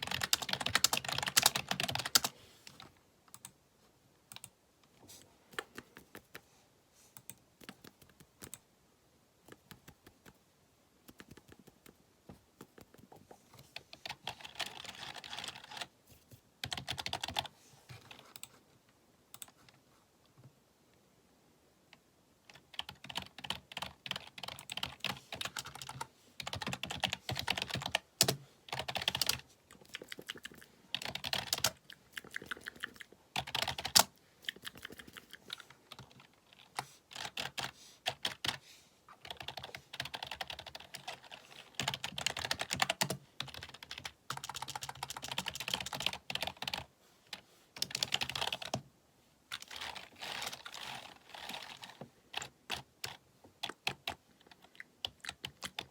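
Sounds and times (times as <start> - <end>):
fast typing on keyboard: 0.0 - 2.3, 11.0 - 12.0, 12.6 - 15.9, 16.6 - 17.5, 22.5 - 38.6, 39.2 - 46.9, 47.8 - 48.8, 49.6 - 55.9.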